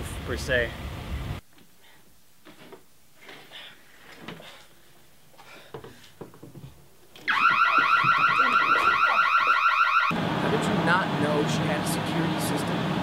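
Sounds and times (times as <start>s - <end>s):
warbling security alarm: 7.3s - 10.2s.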